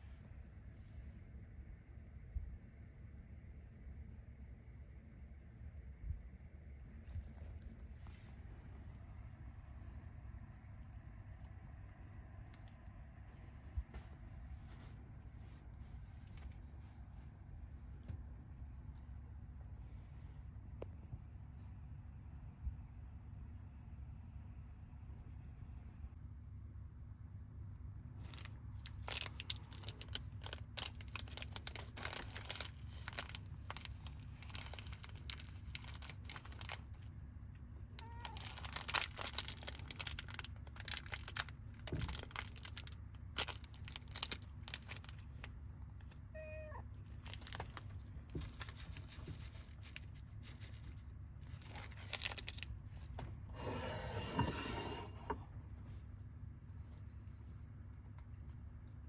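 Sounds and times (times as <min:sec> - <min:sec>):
steady low hum: 0:00.0 - 0:59.0
rustling and clicking handling: 0:28.2 - 0:37.1, 0:38.0 - 0:46.2, 0:47.0 - 0:53.4
cat meowing: 0:38.0 - 0:38.5, 0:46.3 - 0:46.9.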